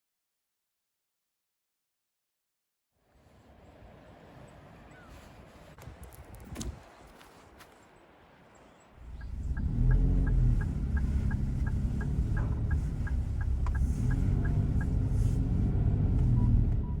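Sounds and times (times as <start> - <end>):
car engine rumbling: 8.9 - 17.0
even ticking: 9.0 - 15.1.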